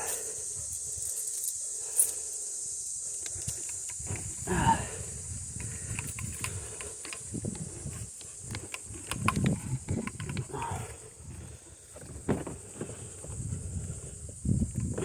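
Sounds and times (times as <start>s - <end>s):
dogs breathing: 0.0s - 14.4s
clicks knocks and thuds of handling: 8.2s - 10.8s, 12.0s - 13.4s.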